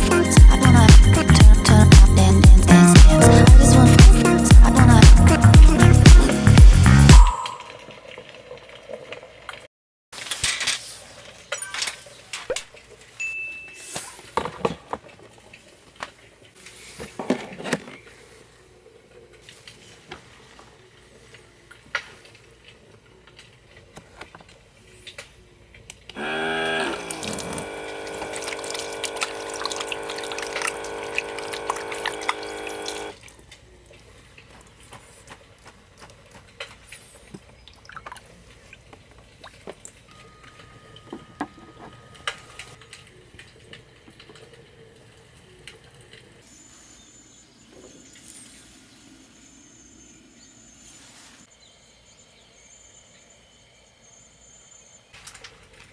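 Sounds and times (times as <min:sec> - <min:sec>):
water pouring into a container: 0:26.9 - 0:33.4.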